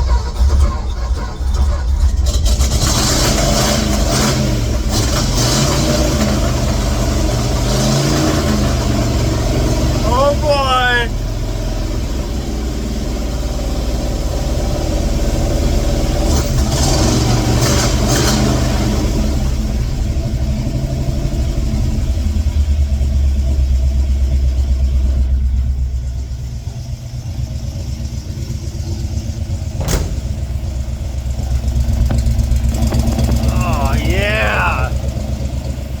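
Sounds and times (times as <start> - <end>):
truck engine running unevenly: 8.4 - 36.0.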